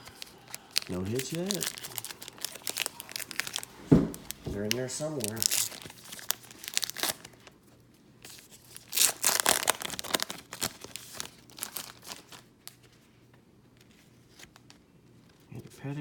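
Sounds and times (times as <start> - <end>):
foil wrapper tearing and crinkling: 0.0 - 7.6, 8.2 - 12.8.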